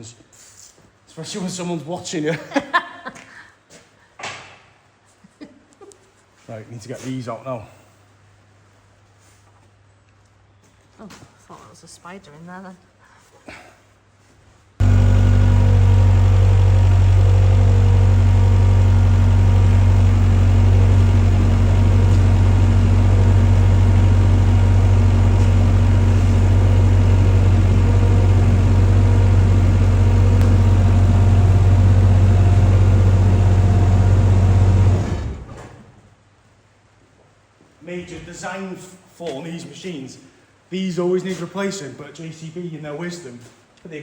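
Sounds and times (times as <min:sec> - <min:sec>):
diesel engine idling: 0:14.8 - 0:35.6.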